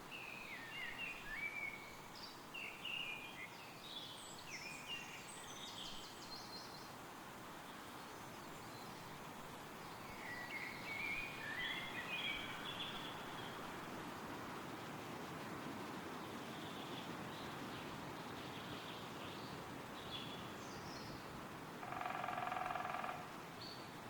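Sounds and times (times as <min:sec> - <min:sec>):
songbirds singing: 0:00.0 - 0:07.0, 0:09.8 - 0:13.8, 0:16.2 - 0:24.0
wind rustling through trees: 0:00.0 - 0:24.0.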